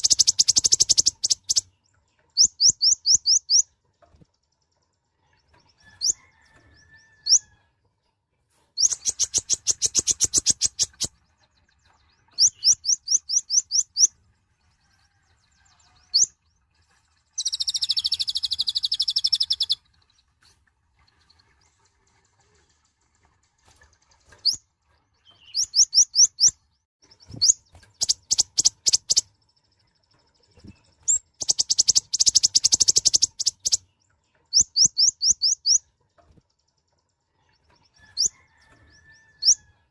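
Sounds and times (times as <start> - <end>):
buzzy bird chatter: 0.0 - 5.1, 8.8 - 14.1, 16.1 - 20.3, 23.6 - 39.6
bird chirps: 0.0 - 7.4, 8.8 - 20.3, 24.3 - 39.7.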